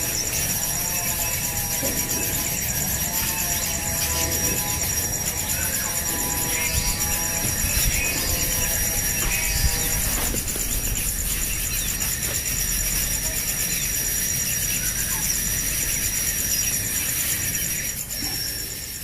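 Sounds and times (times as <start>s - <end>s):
high-pitched insect-like trill: 0.0s - 19.0s.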